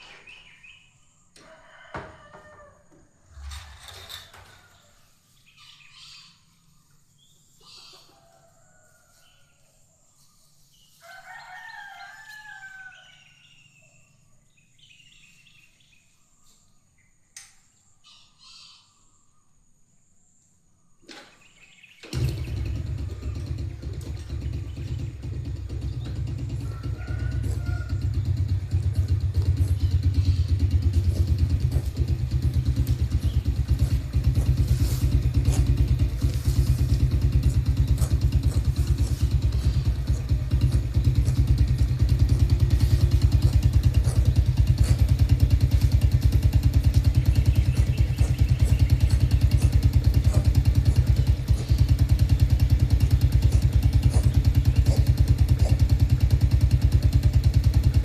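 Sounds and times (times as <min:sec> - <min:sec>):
engine running steadily: 0:22.0 - 0:58.0.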